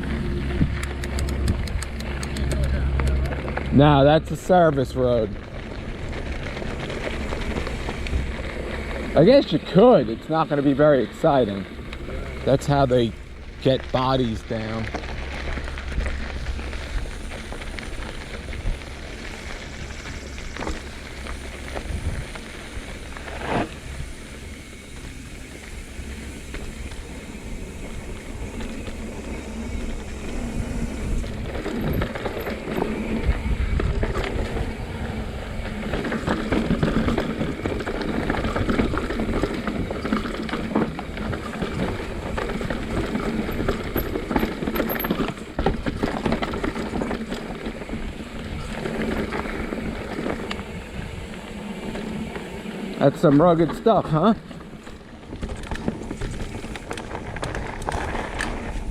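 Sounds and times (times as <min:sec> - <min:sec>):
wind on microphone: 0:00.0 - 0:03.3, 0:21.7 - 0:23.0, 0:27.8 - 0:40.2
bike frame and chain rattling: 0:00.0 - 0:58.9
tyres crunching over rocks: 0:00.0 - 0:58.9.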